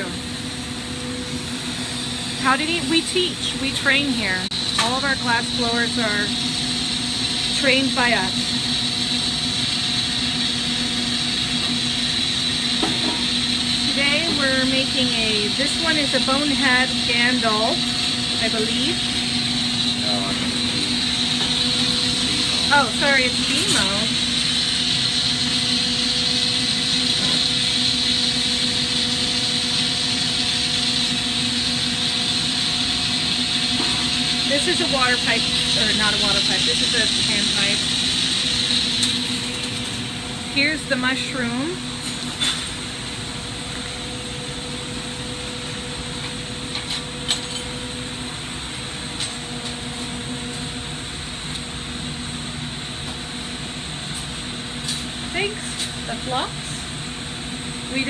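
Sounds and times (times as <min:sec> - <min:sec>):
torch flame roaring: 0:00.0 - 0:43.9.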